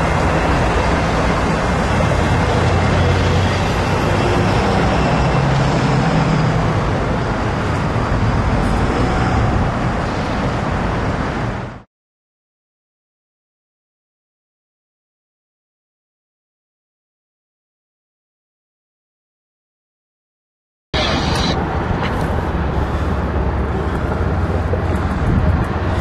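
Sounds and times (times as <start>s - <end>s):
diesel train passing: 0.0s - 11.8s, 21.0s - 26.0s.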